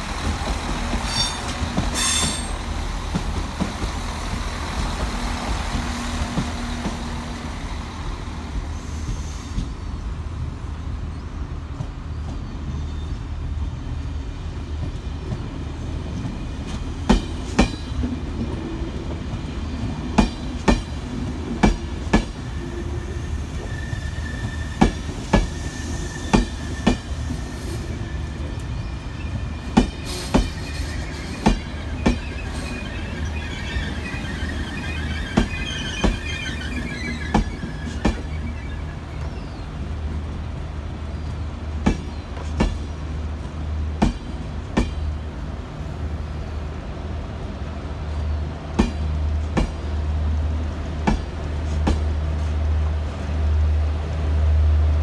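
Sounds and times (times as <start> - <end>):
train coaches rumbling: 0.0 - 55.0
thin wheel squeal: 30.0 - 39.6.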